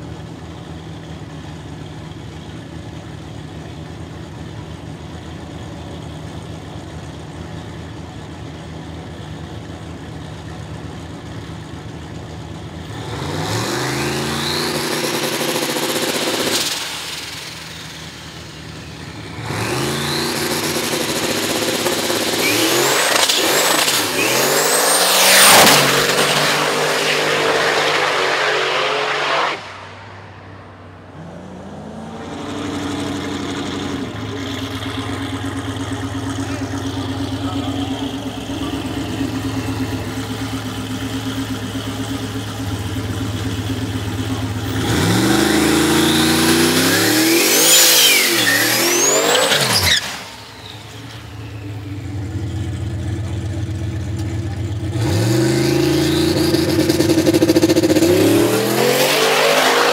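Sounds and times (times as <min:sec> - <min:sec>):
drag car engine revving: 0:08.9 - 0:59.9
high turbo whine: 0:12.6 - 0:59.9.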